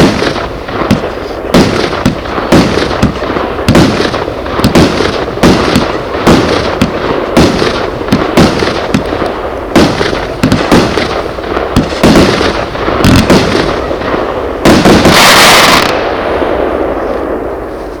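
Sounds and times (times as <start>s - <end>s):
fireworks bangs: 0.0s - 18.0s
loud hissing burst: 13.6s - 18.0s.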